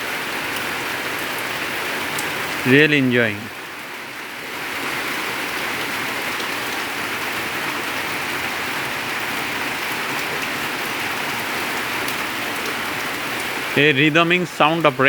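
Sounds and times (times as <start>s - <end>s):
steady rain hiss: 0.0s - 15.0s
rain drop ticks: 0.4s - 2.5s, 9.9s - 15.0s.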